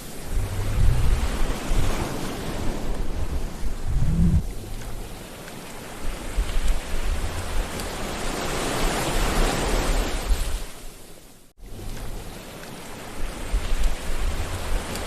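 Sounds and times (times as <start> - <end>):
sea waves breaking: 0.0 - 10.9.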